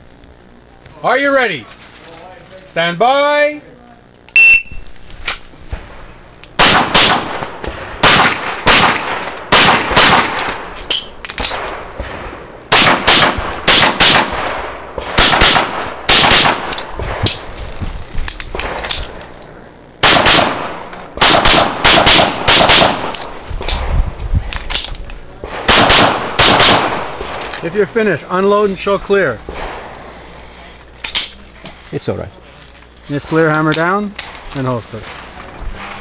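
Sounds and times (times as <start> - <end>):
pistol shots: 6.6 - 17.5, 20.0 - 23.9, 25.4 - 27.5.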